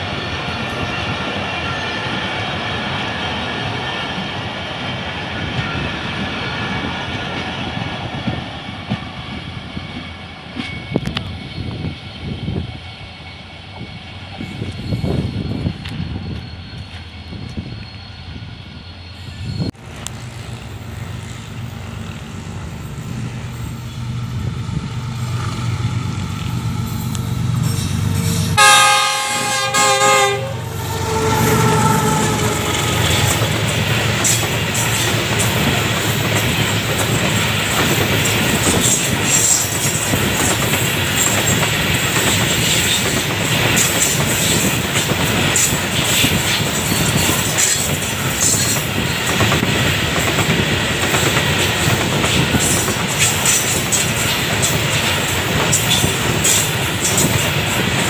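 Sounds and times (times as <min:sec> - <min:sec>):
train wheels clattering on rails: 0:00.0 - 0:12.0, 0:31.3 - 0:58.0
diesel locomotive engine hum: 0:00.0 - 0:58.0
train horn: 0:28.2 - 0:33.7.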